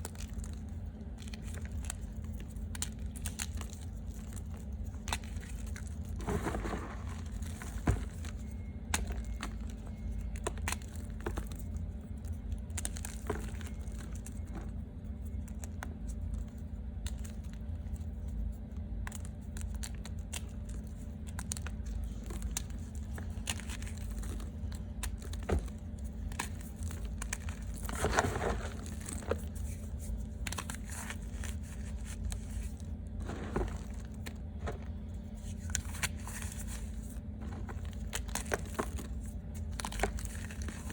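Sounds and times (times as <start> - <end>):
steady low hum: 0.0 - 40.9
chalk crunching: 27.0 - 39.2.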